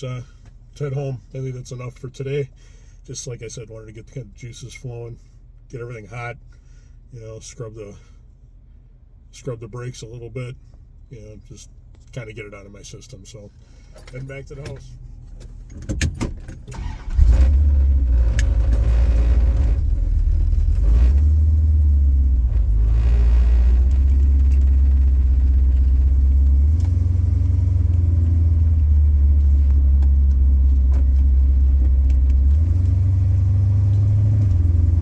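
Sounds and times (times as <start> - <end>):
deep exhaust rumble: 16.5 - 35.0.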